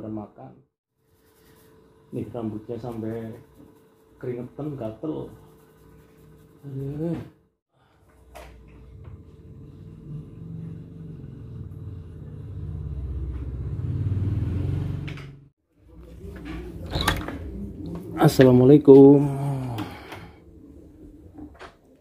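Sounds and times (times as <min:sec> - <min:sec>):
electric fan rumbling: 0:08.0 - 0:15.3, 0:15.9 - 0:21.7.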